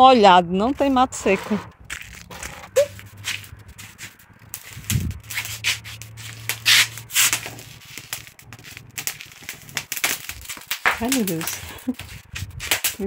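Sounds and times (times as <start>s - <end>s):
grass rustling on concrete: 0.7s - 13.0s.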